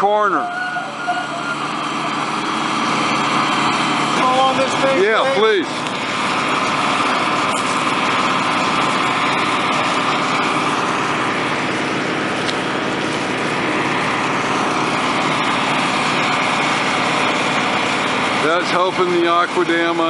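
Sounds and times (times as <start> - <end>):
water pump engines running: 0.0 - 20.0.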